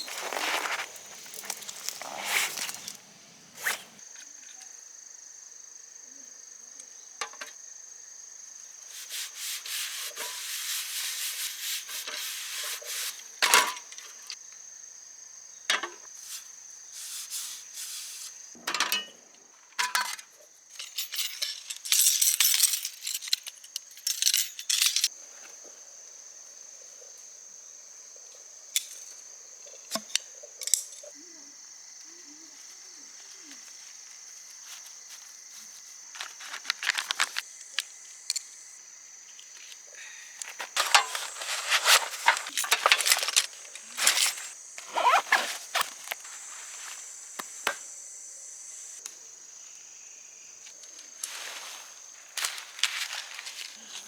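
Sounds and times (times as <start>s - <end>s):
objects rubbing and rustling: 0.0s - 4.0s, 8.9s - 13.9s, 33.5s - 37.5s, 40.4s - 47.8s, 51.2s - 54.0s
high-pitched insect trill: 0.0s - 18.6s, 19.8s - 54.0s.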